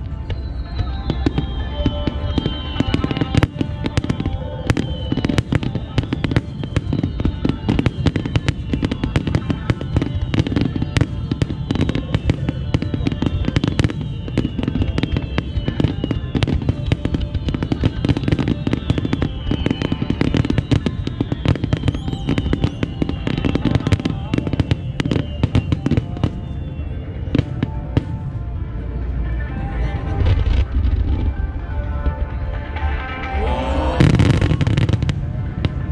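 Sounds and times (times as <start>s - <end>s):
fireworks booms and bangs: 0.0s - 28.5s, 30.2s - 35.9s.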